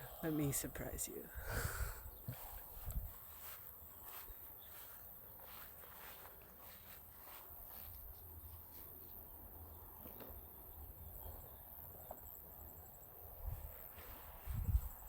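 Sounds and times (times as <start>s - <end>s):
high insect trill: 7.2s - 15.0s.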